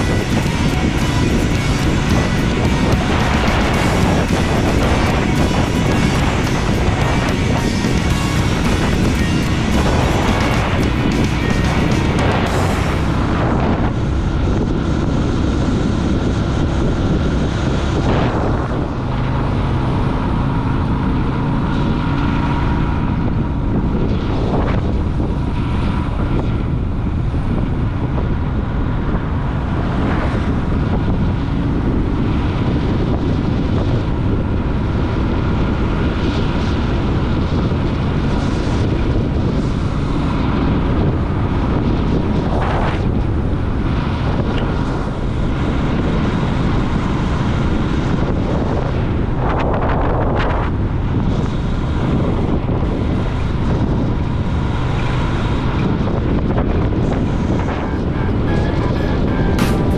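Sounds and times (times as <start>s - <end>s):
motorcycle engine running: 0.0s - 15.8s
wind noise on microphone: 0.0s - 59.9s.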